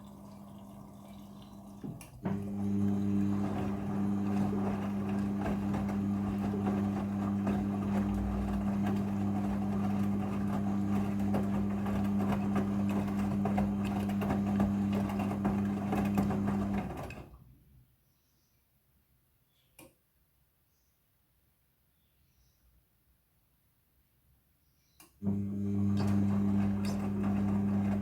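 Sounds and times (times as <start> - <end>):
washing machine running: 0.0 - 17.4, 25.2 - 28.0.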